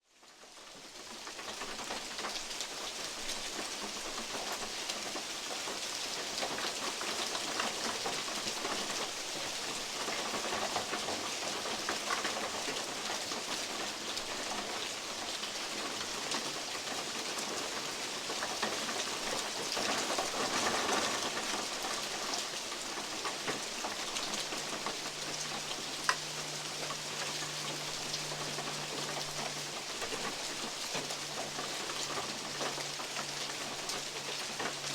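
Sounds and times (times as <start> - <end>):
rain pattering on metal roof: 0.1 - 34.9.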